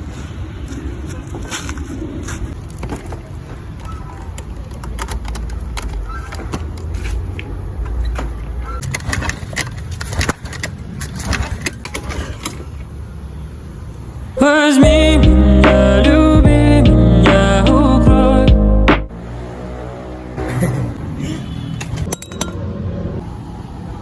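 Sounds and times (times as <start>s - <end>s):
scattered clicks and knocks: 4.3s - 6.9s.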